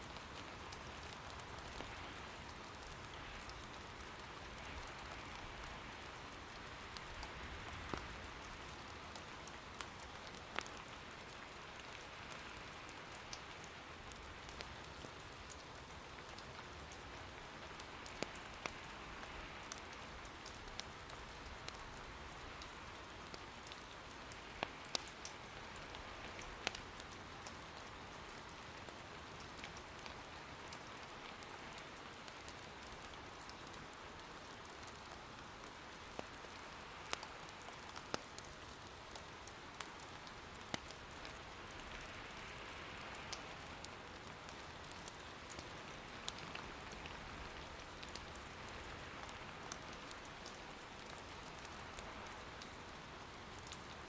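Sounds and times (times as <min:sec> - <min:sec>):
soft steady rain: 0:00.0 - 0:54.0
burning wood crackling: 0:00.1 - 0:54.0.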